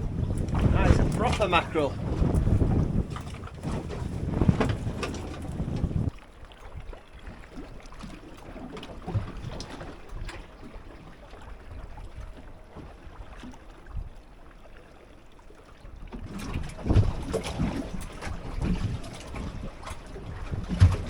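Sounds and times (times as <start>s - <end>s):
wind on microphone: 0.0s - 7.0s, 15.9s - 21.0s
water slapping against boat hull: 0.0s - 14.4s, 15.7s - 21.0s.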